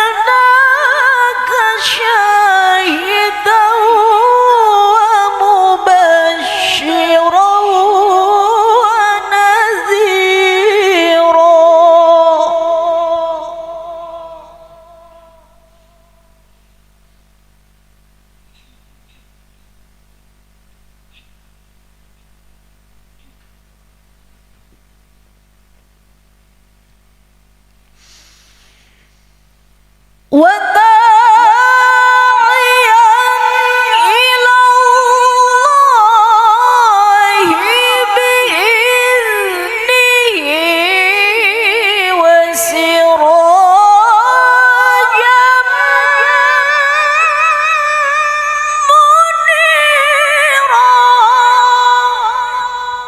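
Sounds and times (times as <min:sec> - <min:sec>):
woman chanting recitation: 0:00.0 - 0:16.5, 0:30.3 - 0:53.0.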